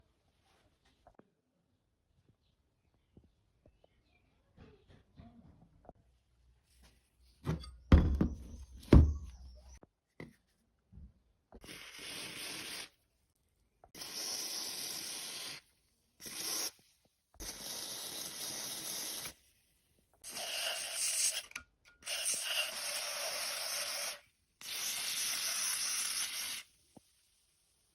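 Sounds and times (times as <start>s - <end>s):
hissing bursts: 22.1s - 26.7s.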